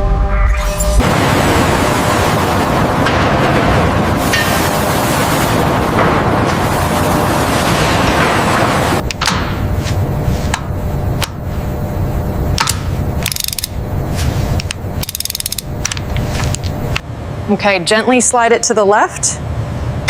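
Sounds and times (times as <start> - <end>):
low industrial hum: 0.0 - 20.0
single sharp mechanical clicks: 12.6 - 13.8, 15.0 - 16.0
rapid ratchet-like clicking: 13.2 - 13.8, 15.0 - 15.7.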